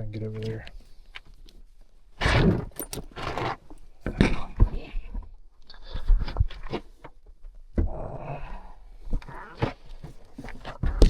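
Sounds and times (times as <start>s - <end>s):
person crawling and shuffling: 2.2s - 5.1s, 9.0s - 11.0s.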